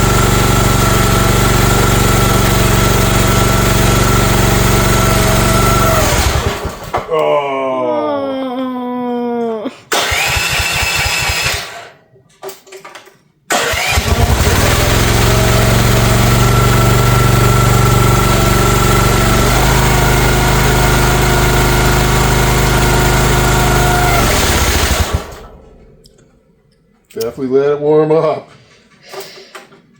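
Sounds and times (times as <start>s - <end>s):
small engine starting and running: 0.0s - 7.1s, 9.9s - 12.0s, 13.5s - 26.1s.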